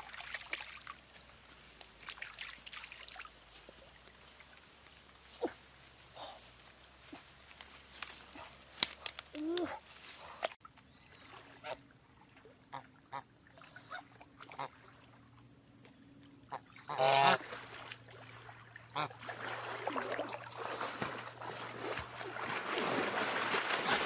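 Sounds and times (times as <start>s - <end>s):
goose honking: 16.9s - 17.4s.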